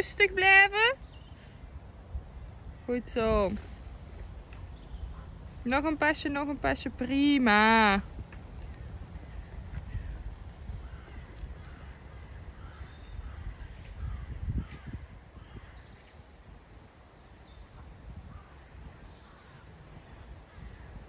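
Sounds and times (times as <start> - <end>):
crows cawing: 8.6 - 15.8.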